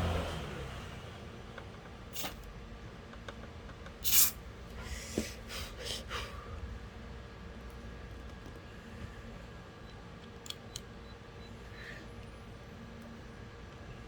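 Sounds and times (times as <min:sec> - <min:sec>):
aerosol can spraying: 0:02.2 - 0:02.4, 0:04.0 - 0:04.4.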